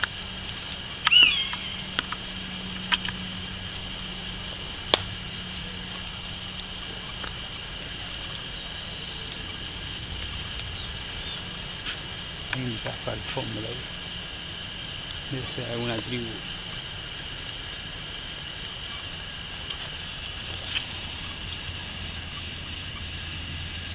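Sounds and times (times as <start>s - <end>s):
high drone of insects: 0.0s - 23.9s
short bird call: 1.0s - 2.2s
sharp clicks: 4.8s - 12.6s.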